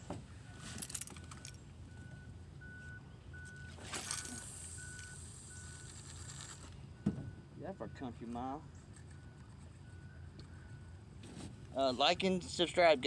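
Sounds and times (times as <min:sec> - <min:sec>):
handling rustle: 0:00.0 - 0:01.7
low steady hum: 0:00.0 - 0:13.0.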